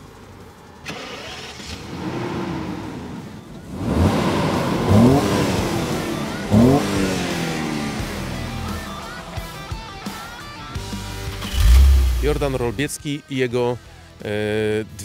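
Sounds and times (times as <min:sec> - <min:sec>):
car engine revving: 0:00.8 - 0:12.8.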